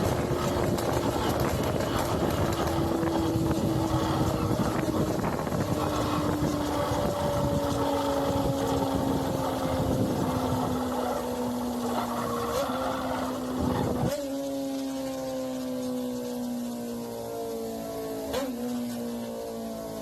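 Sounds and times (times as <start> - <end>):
wind rushing over microphone: 0.0 - 14.2
motorcycle engine running: 0.0 - 20.0.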